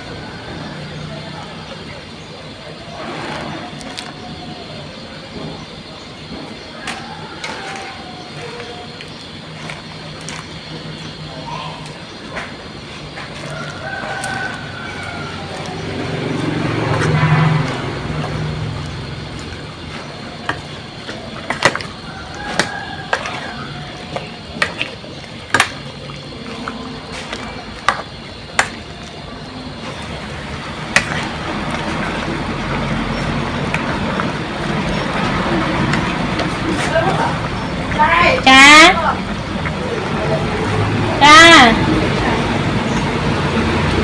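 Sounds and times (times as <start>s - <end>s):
faint voices: 0.0s - 44.0s
steady background noise: 0.0s - 44.0s.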